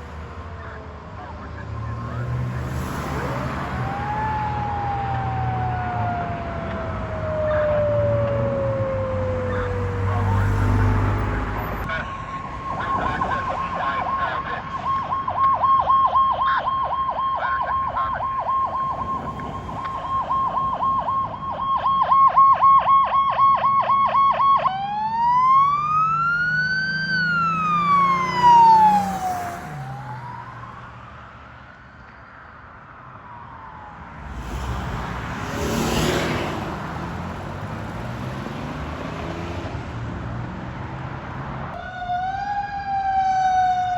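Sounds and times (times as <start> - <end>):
fire truck siren yelping and wailing: 0.0 - 40.0, 41.7 - 43.9
lower siren tone falling: 3.6 - 14.2, 14.8 - 30.9.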